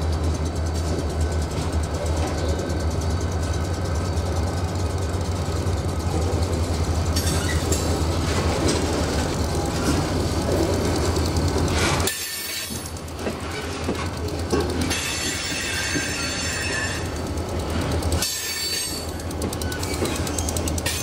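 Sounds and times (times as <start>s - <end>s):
low train rumble: 0.0s - 21.0s
freight train wheels squealing: 0.8s - 10.2s, 11.6s - 21.0s.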